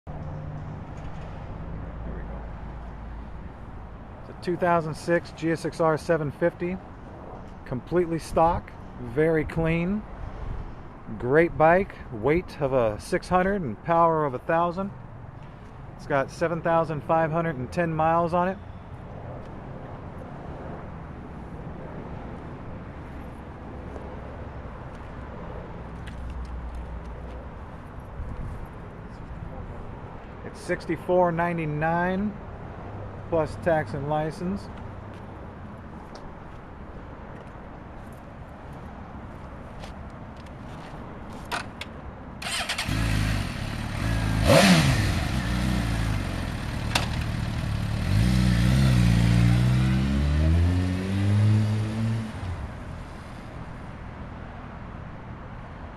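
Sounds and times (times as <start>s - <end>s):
motor vehicle rumble: 0.1s - 12.6s, 32.9s - 54.6s
motorcycle engine starting and revving: 42.4s - 52.7s.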